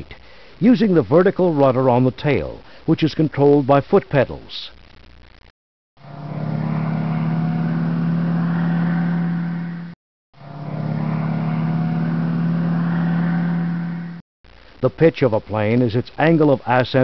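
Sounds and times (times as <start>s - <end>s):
aircraft engine drone: 6.0s - 14.2s.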